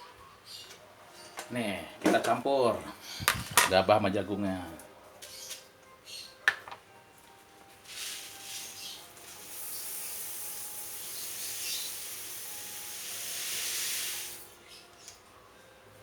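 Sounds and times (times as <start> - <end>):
grain rattling into hot pan: 7.8 - 14.6.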